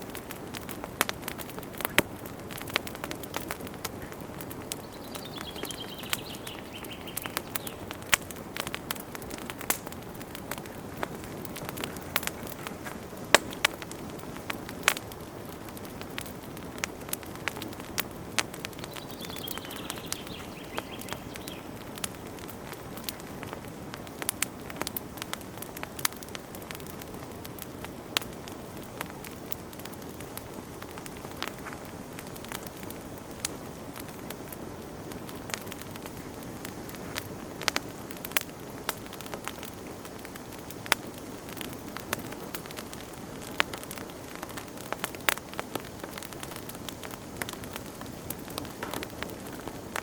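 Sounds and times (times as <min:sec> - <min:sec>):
wood fire crackling and popping: 0:00.0 - 0:50.0
high chirps: 0:18.8 - 0:21.8.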